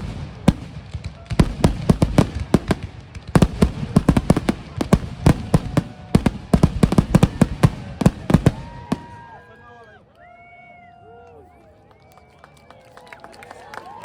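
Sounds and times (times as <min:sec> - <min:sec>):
fireworks bangs and cracks: 0:00.0 - 0:09.4.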